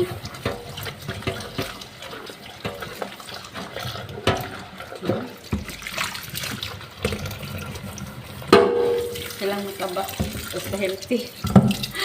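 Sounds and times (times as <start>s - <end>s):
tap water running and splashing: 0.0s - 12.0s
sharp knocks and clatters: 2.6s - 9.4s.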